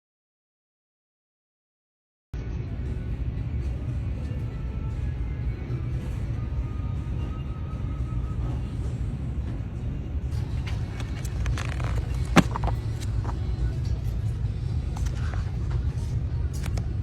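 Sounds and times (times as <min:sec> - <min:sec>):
car rumbling in motion: 0:10.4 - 0:15.8.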